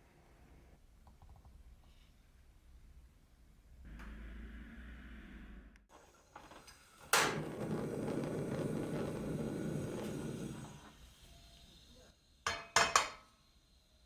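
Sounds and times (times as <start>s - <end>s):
kitchenware clinking: 12.5s - 13.4s.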